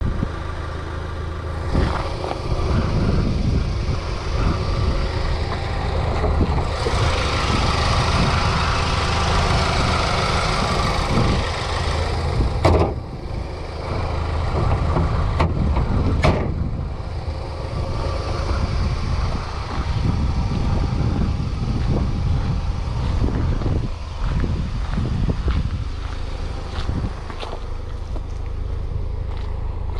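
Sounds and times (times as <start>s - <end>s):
motor vehicle rumble: 0.0s - 29.9s
sharp clicks or knocks: 12.6s - 13.0s.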